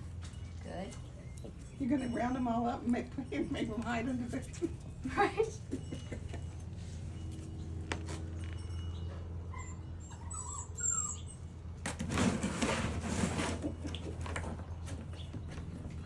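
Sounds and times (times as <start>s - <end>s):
puppies squeaking: 0.2s - 11.8s.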